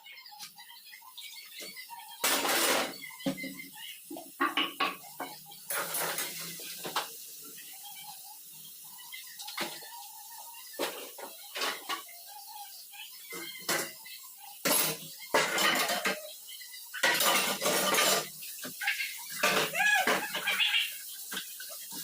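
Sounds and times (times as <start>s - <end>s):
metal utensils scraping: 2.2s - 3.0s, 5.7s - 6.6s, 14.6s - 16.3s, 17.0s - 18.5s, 19.3s - 20.7s
metal pots clattering: 2.2s - 7.1s, 10.8s - 12.1s, 13.3s - 14.0s, 14.6s - 22.0s.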